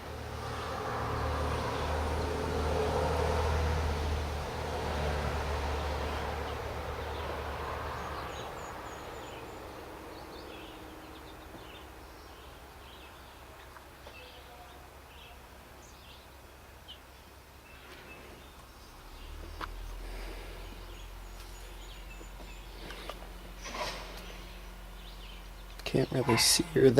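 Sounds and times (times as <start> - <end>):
small birds chirping: 5.6 - 26.9
low rumbling noise: 17.6 - 26.9.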